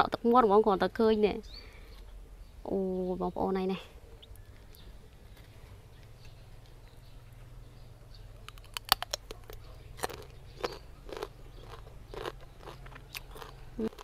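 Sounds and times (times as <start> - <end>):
crunchy chewing: 8.4 - 14.0.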